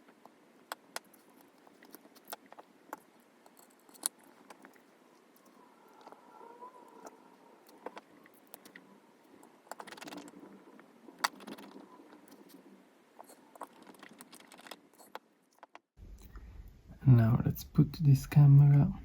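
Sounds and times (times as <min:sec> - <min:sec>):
small parts and tools clicking: 0:00.0 - 0:06.2, 0:07.0 - 0:12.6, 0:13.2 - 0:16.3.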